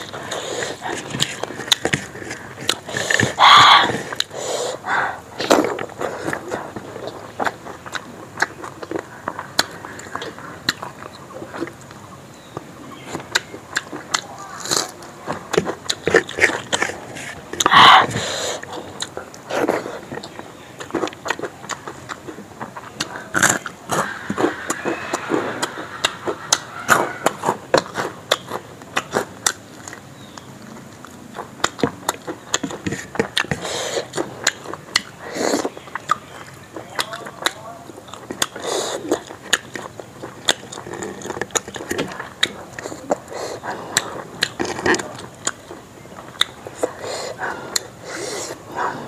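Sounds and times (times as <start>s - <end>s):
wet chewing and lip smacking: 0.0s - 49.0s.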